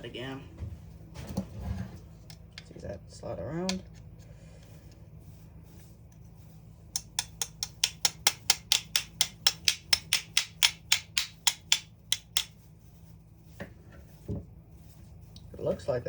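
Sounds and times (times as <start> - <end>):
rapid hammer taps: 6.9 - 12.6.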